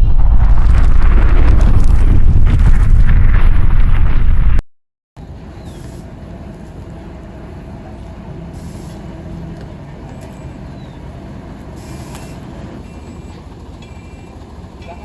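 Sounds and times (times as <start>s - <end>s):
diesel engine rumbling: 5.2s - 15.0s
air hisses: 8.5s - 9.1s, 11.8s - 12.5s.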